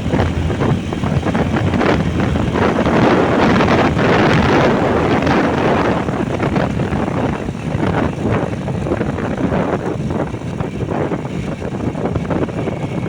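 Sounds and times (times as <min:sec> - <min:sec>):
road and vehicle noise: 0:00.0 - 0:13.0
wind buffeting microphone: 0:00.0 - 0:13.0.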